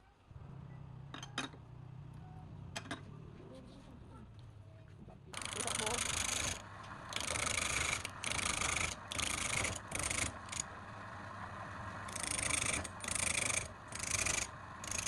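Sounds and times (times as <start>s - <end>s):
rasping strokes on wood: 5.4s - 10.7s, 12.0s - 15.0s.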